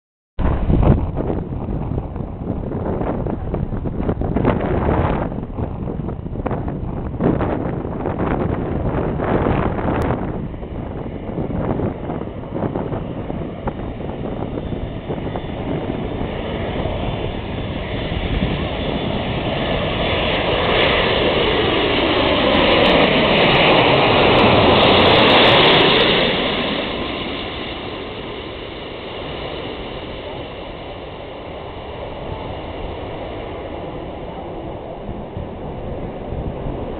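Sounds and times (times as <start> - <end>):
airliner jet engines passing: 0.4 - 36.9.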